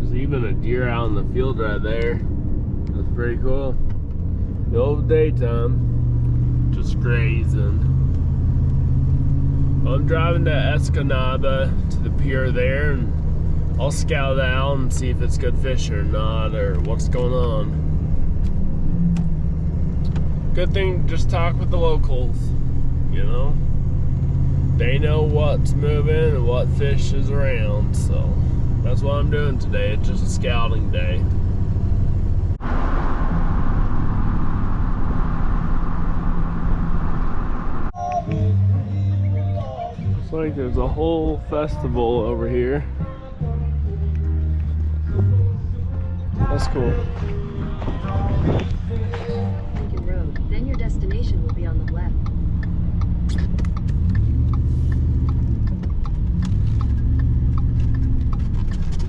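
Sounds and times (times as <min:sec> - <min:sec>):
truck engine and tyre noise: 0:00.0 - 0:59.0
turn signal ticking: 0:07.8 - 0:12.4, 0:47.2 - 0:59.0.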